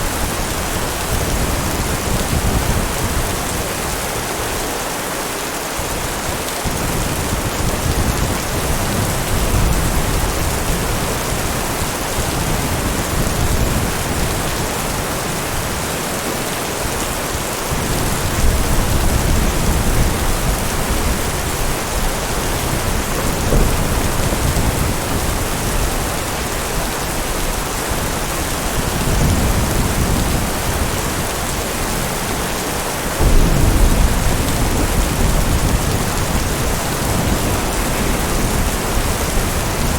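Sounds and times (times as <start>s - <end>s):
heavy rain: 0.0s - 39.9s
thunder rumbling: 17.7s - 39.9s.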